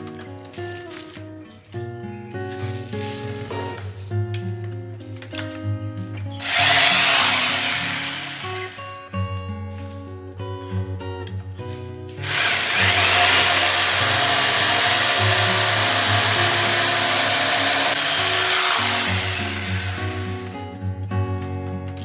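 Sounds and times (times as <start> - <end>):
guitar music: 0.0 - 22.0
power tool running: 6.4 - 9.0, 12.2 - 20.7.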